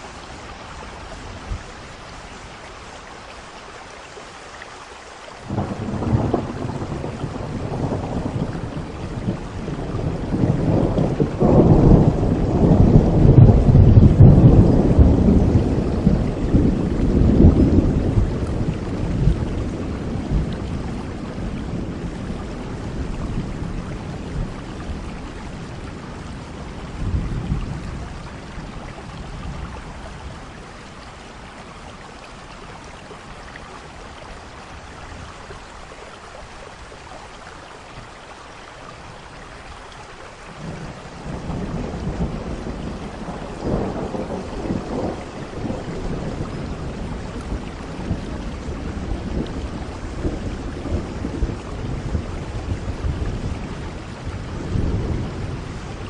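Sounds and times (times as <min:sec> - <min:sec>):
steady rain falling: 0:00.0 - 0:56.0
rolling thunder: 0:05.5 - 0:30.8, 0:40.6 - 0:56.0.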